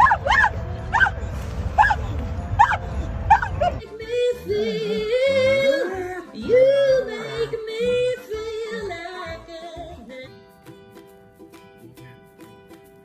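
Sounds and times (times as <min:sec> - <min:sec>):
dog howling: 0:00.0 - 0:01.2.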